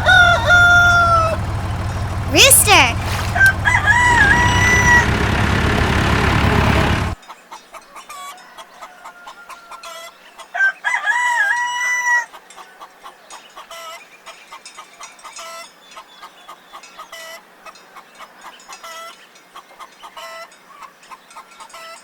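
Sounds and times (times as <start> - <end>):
rooster crowing: 0.0 - 1.5, 3.3 - 5.1, 10.6 - 12.2.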